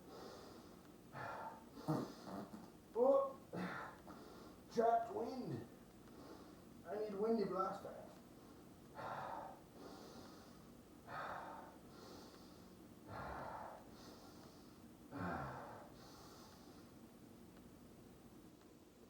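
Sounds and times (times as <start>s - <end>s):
man breathing heavily: 0.0s - 2.5s, 3.5s - 4.7s, 6.1s - 6.8s, 8.3s - 17.0s
man groaning: 15.1s - 15.8s.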